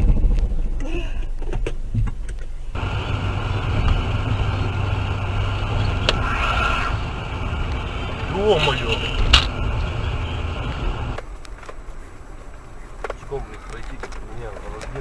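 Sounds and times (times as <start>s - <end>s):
car engine hum: 0.0s - 15.0s
road noise: 0.0s - 15.0s.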